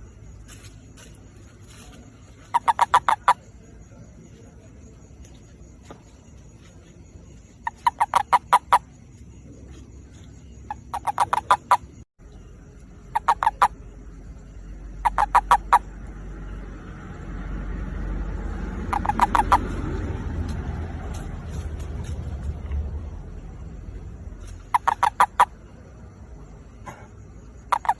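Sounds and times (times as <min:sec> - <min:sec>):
toad mating call: 0:02.5 - 0:03.5, 0:07.6 - 0:08.9, 0:10.7 - 0:12.0, 0:13.0 - 0:13.9, 0:14.9 - 0:16.0, 0:18.8 - 0:19.8, 0:24.5 - 0:25.6, 0:27.6 - 0:27.9
low rumble: 0:13.8 - 0:24.7.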